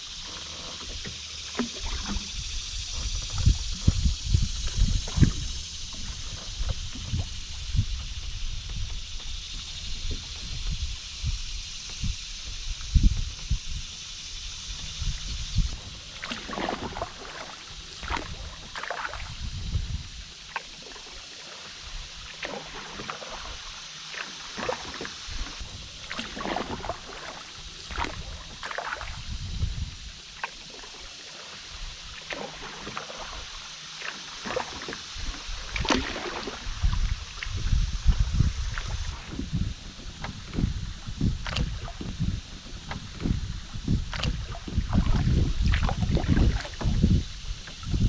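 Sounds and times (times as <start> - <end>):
water splashes and drips: 0.0 - 11.2, 14.6 - 48.0
paddle strokes in water: 0.0 - 48.0.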